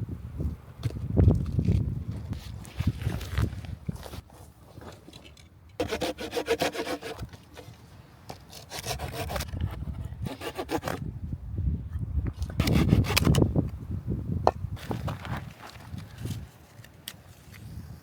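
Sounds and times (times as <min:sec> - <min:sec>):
hand saw cutting wood: 0:05.8 - 0:07.7, 0:08.5 - 0:11.0, 0:12.6 - 0:13.4.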